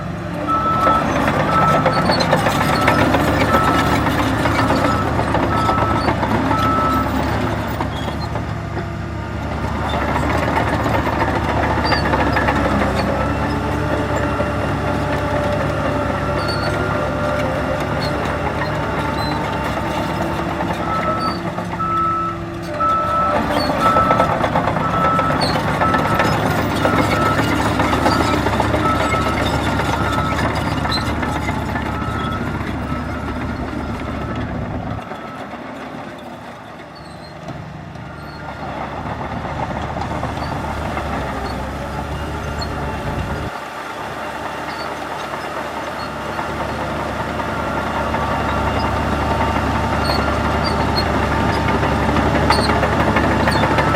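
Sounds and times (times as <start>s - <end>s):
heavy diesel machines running: 0.0s - 53.9s
reversing alarm beeping: 0.5s - 7.4s, 20.8s - 35.6s.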